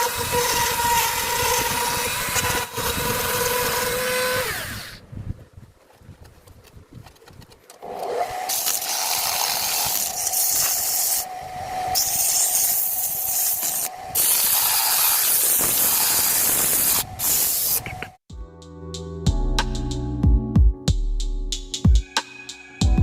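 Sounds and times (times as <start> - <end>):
spray gun hissing: 12.2 - 17.8.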